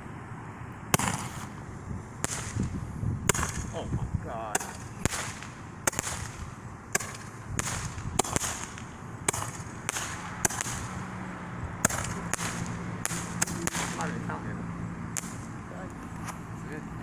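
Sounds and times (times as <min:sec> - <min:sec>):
short firework hiss: 0:00.9 - 0:03.8, 0:04.6 - 0:11.1
firework sharp cracks: 0:00.9 - 0:14.5, 0:15.1 - 0:16.4.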